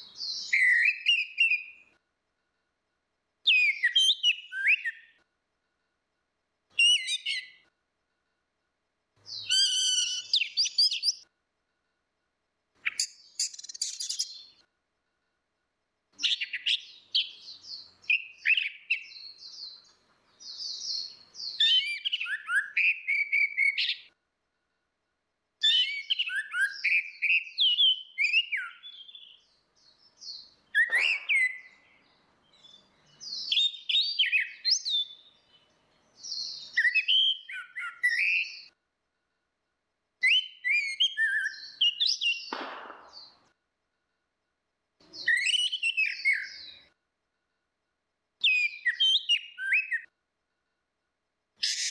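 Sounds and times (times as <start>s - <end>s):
thrushes singing: 25.7s - 38.8s.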